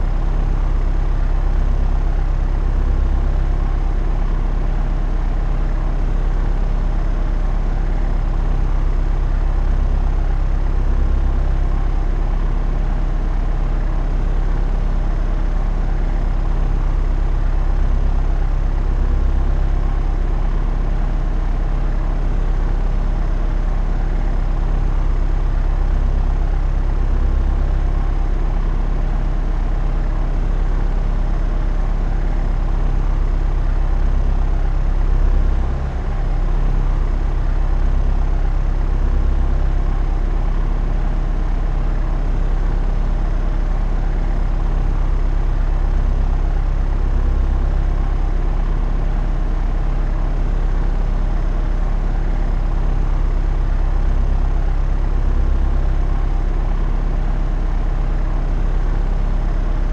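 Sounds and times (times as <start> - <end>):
propeller aircraft drone: 0.0 - 59.9.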